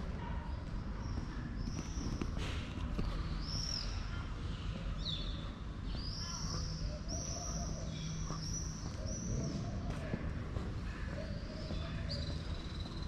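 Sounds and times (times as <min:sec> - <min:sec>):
low rumble of street noise: 0:00.0 - 0:13.0
birds chirping: 0:03.0 - 0:13.0.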